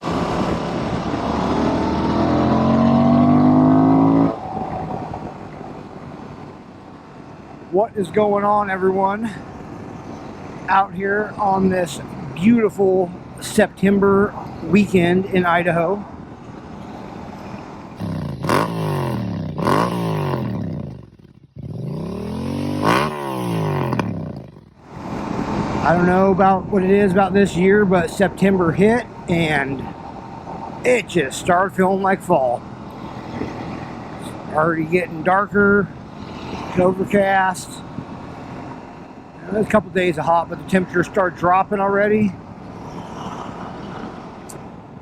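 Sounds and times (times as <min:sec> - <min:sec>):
road and wind noise: 0:00.0 - 0:45.0
motorcycle engine accelerating: 0:00.6 - 0:04.4, 0:18.0 - 0:25.0.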